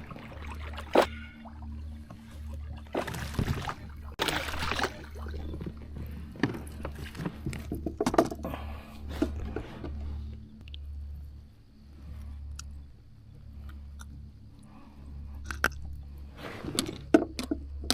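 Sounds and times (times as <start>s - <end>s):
water splashing around kayak: 0.0s - 10.2s
steady low hum: 0.0s - 17.9s
knocks against hull: 6.4s - 8.4s.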